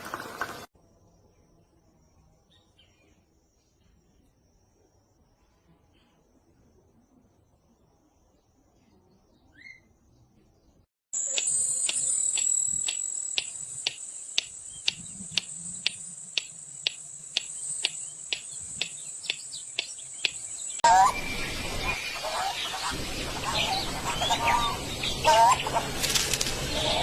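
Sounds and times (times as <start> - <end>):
crickets buzzing and clicking: 11.2 - 20.8, 26.0 - 26.8
short rising chirp: 11.2 - 20.8.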